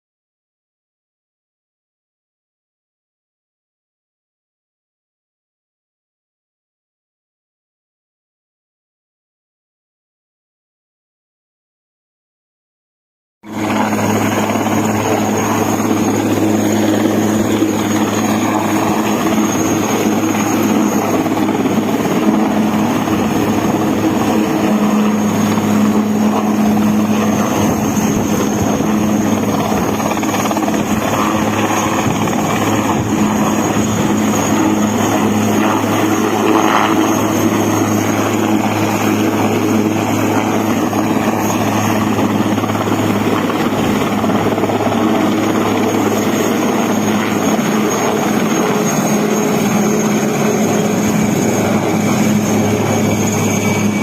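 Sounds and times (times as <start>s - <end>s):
helicopter engine and rotors droning: 13.4s - 54.0s.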